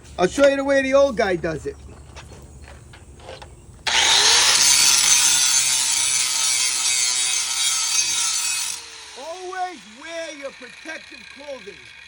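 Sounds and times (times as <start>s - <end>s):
angle grinder grinding metal: 3.2s - 12.0s.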